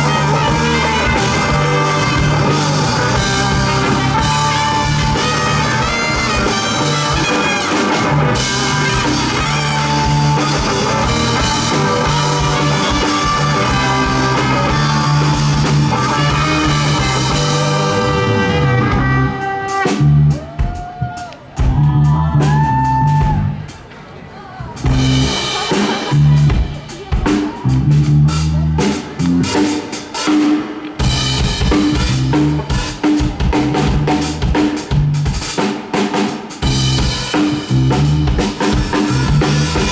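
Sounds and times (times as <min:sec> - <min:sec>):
sliding guitar notes: 0:00.0 - 0:20.2
drum kit and bass groove: 0:00.0 - 0:23.9, 0:24.8 - 0:39.9
live rock band playing: 0:00.0 - 0:23.9, 0:24.8 - 0:39.9.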